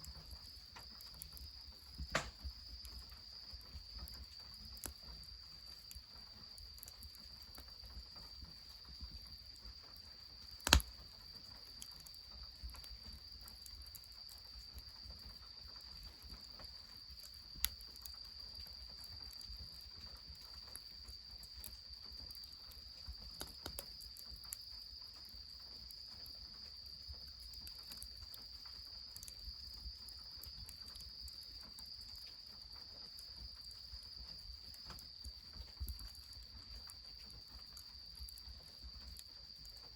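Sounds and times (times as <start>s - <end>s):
crickets chirring: 0.0s - 39.9s
sharp cracks: 2.2s - 2.4s, 10.6s - 10.9s
light ticks: 10.6s - 10.9s.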